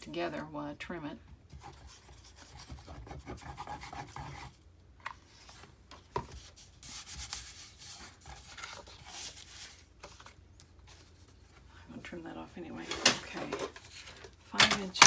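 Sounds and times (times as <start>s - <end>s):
paper rubbing and rustling: 5.2s - 11.7s.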